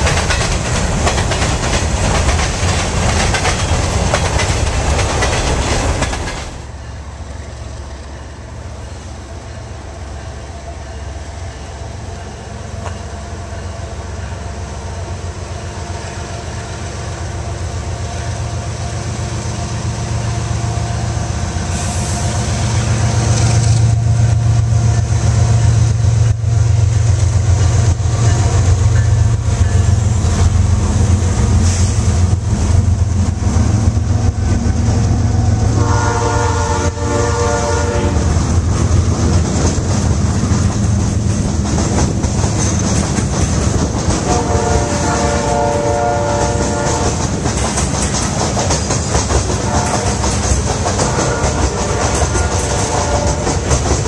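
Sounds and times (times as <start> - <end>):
diesel locomotives running: 0.0 - 54.0
train wheels on rails: 0.0 - 54.0
train horn: 35.6 - 38.4, 44.2 - 47.2, 49.6 - 53.7.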